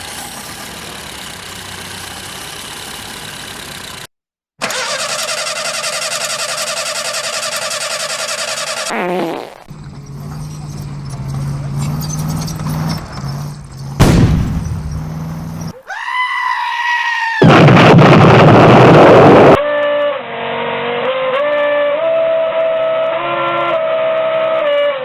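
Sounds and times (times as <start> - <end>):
loud noisy blast: 14.0 - 14.9, 17.4 - 19.6.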